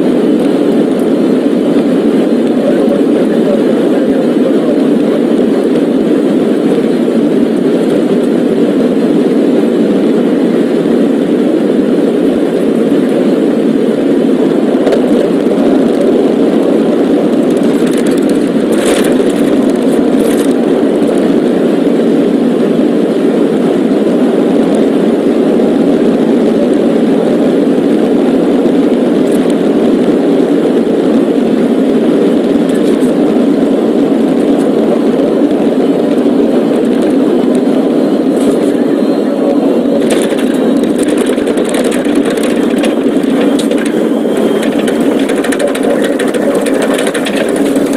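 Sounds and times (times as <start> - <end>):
car engine and road noise: 0.0 - 47.9.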